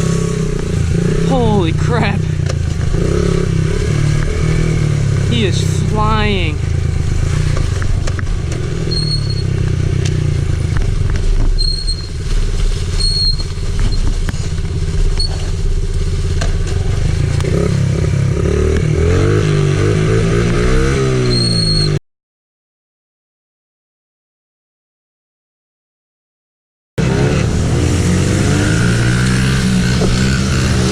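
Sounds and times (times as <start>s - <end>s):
atv engine running: 0.0s - 21.9s, 27.0s - 30.9s
short high squeaks: 8.8s - 9.5s, 11.6s - 12.2s, 13.0s - 14.1s, 21.2s - 22.0s.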